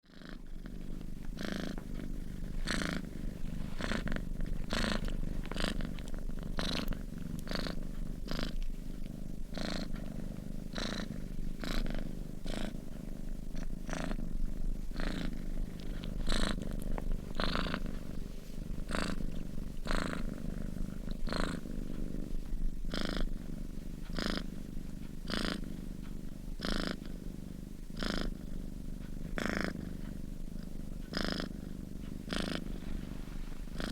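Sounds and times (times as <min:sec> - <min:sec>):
cat purring: 0:00.0 - 0:33.9.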